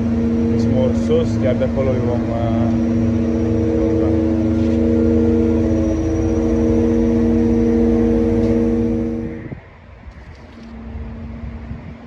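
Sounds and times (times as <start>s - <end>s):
truck engine at raised revs: 0.0s - 9.6s.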